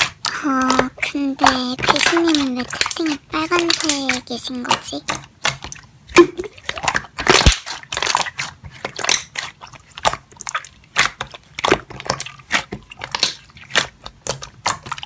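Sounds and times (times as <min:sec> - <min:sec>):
slime squished crackling: 0:00.0 - 0:15.0.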